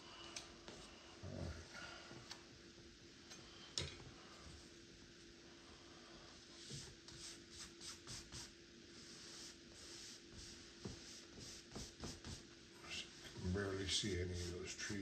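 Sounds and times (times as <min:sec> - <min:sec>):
brush strokes on canvas: 0:06.0 - 0:15.0.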